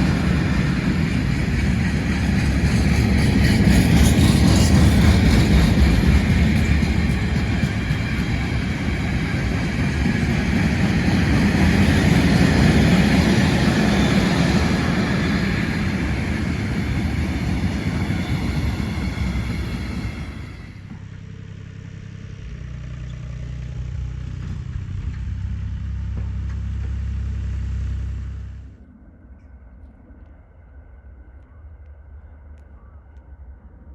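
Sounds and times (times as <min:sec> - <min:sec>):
train rolling on rails: 0:00.0 - 0:21.3
low steady engine hum: 0:04.7 - 0:33.9.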